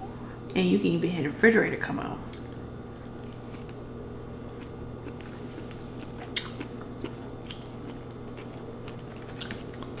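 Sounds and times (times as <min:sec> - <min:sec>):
refrigerator hum: 0:00.0 - 0:10.0
chewing and wet mouth sounds: 0:02.3 - 0:10.0.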